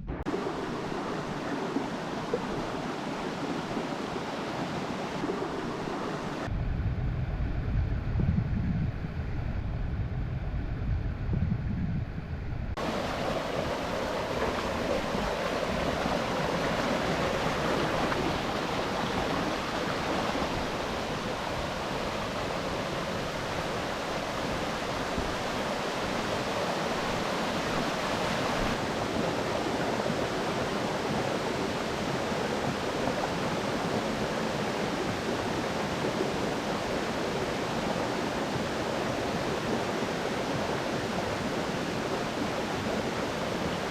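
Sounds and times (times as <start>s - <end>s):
mountain stream rushing: 0.2s - 6.5s, 12.8s - 43.9s
low muffled rumble: 6.5s - 12.8s.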